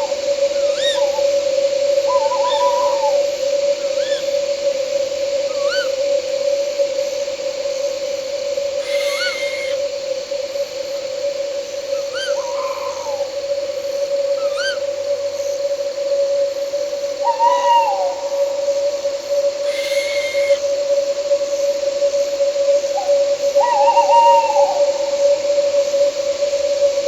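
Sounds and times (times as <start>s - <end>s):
owls calling: 0.0s - 4.7s, 5.4s - 6.2s, 8.7s - 9.9s, 11.8s - 15.3s, 17.2s - 20.7s
night insects droning: 0.0s - 27.0s.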